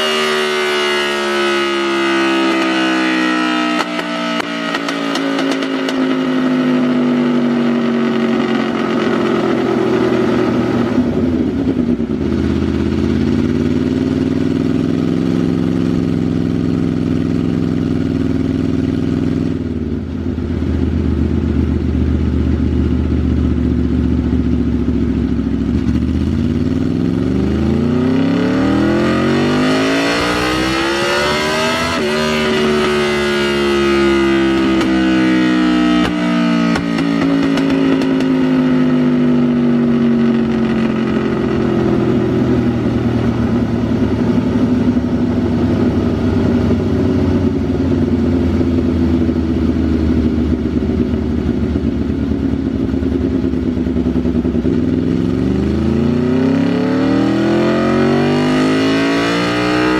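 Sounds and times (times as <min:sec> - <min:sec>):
motorcycle engine revving on a dyno: 0:00.0 - 0:59.9.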